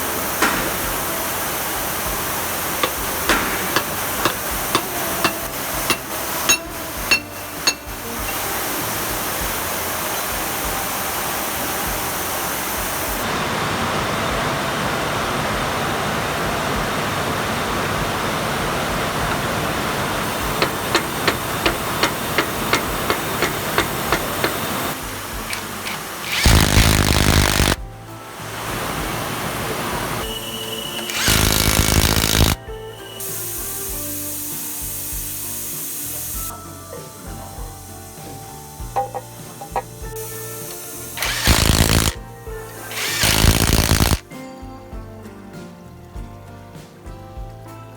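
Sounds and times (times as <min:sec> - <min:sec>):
power tool bursts: 0:00.0 - 0:13.2, 0:20.0 - 0:27.8, 0:30.2 - 0:35.8, 0:39.0 - 0:44.2
background music: 0:00.0 - 0:13.3, 0:16.4 - 0:47.9
evenly spaced clicks: 0:25.5 - 0:27.8.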